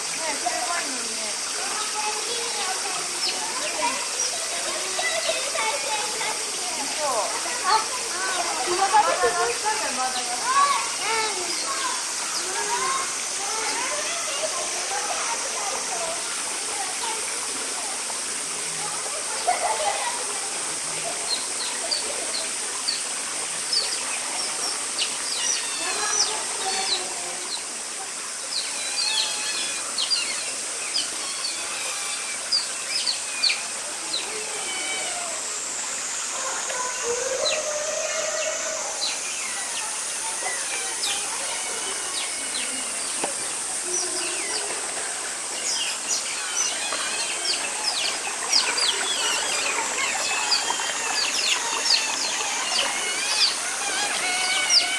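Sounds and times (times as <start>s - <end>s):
otters chirping and squeaking: 28.8s - 33.7s, 45.7s - 54.9s.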